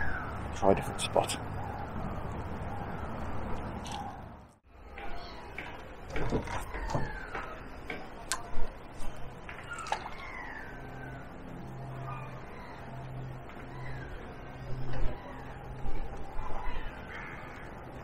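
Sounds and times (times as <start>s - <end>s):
birds whistling calls: 0.0s - 3.3s, 6.6s - 7.7s, 9.5s - 11.4s
outdoor ambience: 0.0s - 18.0s.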